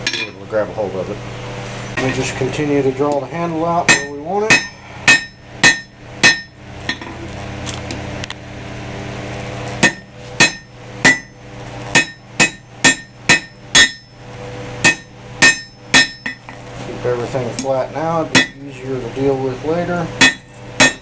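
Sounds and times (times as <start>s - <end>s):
hammer striking steel on anvil: 0.0s - 0.4s, 3.9s - 7.2s, 9.8s - 14.2s, 14.8s - 16.6s, 18.3s - 18.7s, 20.2s - 21.0s.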